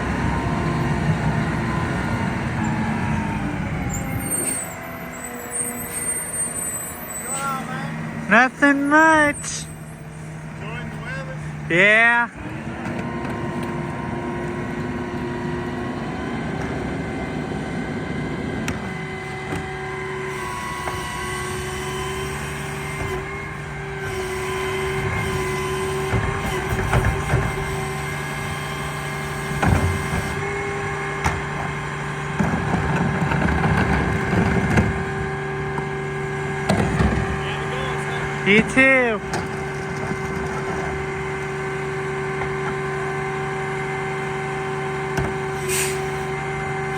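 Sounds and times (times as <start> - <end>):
garbage truck mechanical whine: 0.0 - 46.9
truck engine running: 0.0 - 46.9
trash and bins clattering: 31.2 - 35.2.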